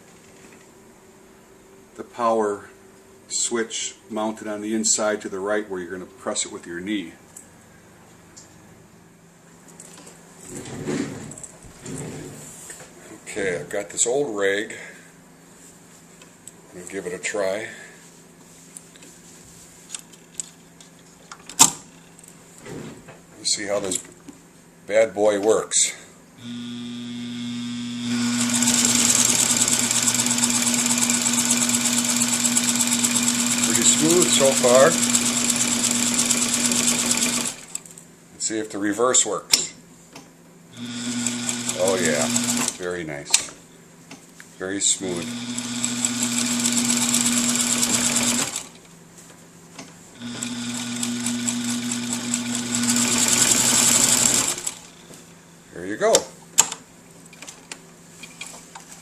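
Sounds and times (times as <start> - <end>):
sewing machine motor humming: 26.4 - 37.8, 40.8 - 42.8, 45.1 - 48.8, 50.2 - 55.0.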